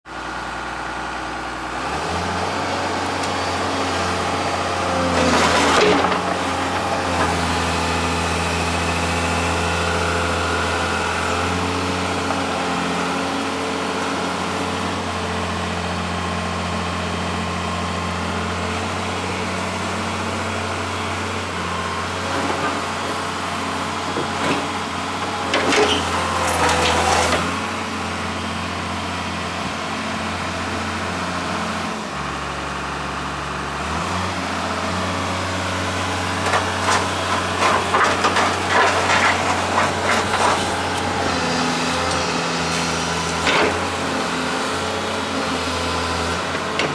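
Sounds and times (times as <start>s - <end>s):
excavator diesel engine running: 0.1s - 46.9s.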